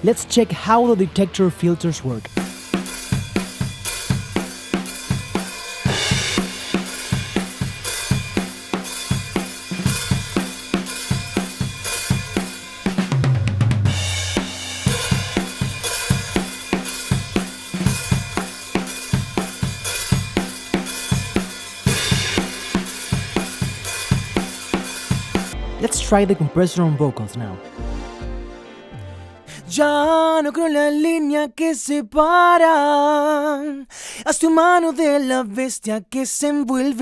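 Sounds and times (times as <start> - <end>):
drum kit playing groove: 0.0 - 27.1, 27.7 - 29.1
cymbal crashes: 2.4 - 12.9, 13.9 - 25.8
low tom fill: 27.7 - 29.2.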